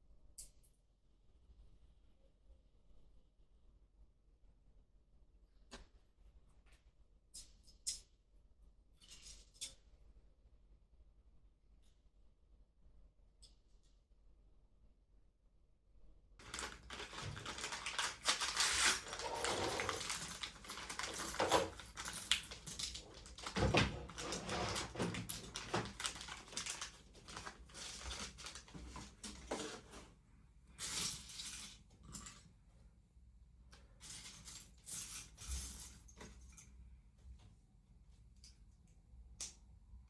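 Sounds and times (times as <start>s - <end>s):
rustling and crackling: 16.4s - 30.2s.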